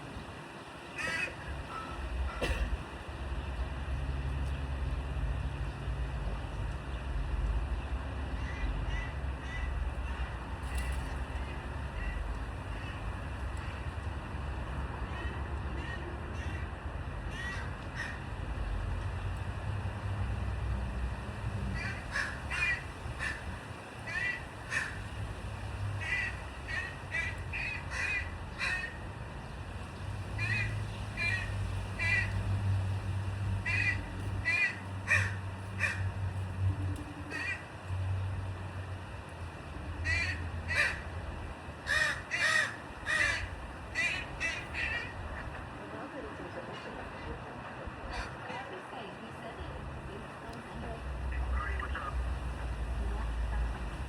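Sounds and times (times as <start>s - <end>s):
crows cawing: 1.0s - 2.6s, 8.4s - 9.8s, 17.3s - 18.3s, 21.8s - 25.2s, 26.0s - 29.0s, 30.4s - 32.4s, 33.6s - 36.2s, 37.3s - 37.7s, 40.0s - 41.1s, 41.8s - 45.3s.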